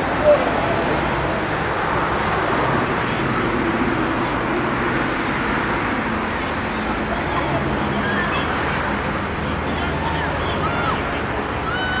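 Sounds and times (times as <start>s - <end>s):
outdoor background noise: 0.0s - 12.0s
faint distant voices: 2.8s - 12.0s.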